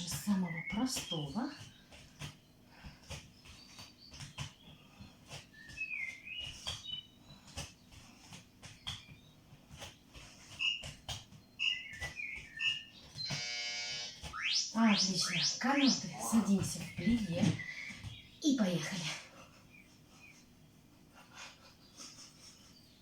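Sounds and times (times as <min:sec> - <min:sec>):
small bird chirping: 0:00.0 - 0:13.5.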